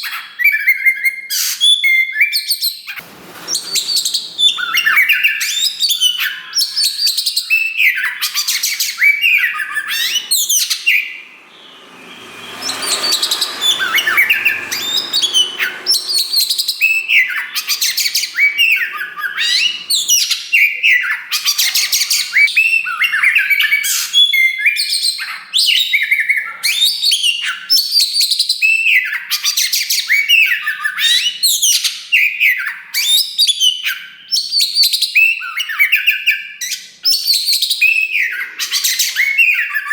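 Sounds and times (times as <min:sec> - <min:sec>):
bird singing: 0:00.0 - 0:25.8.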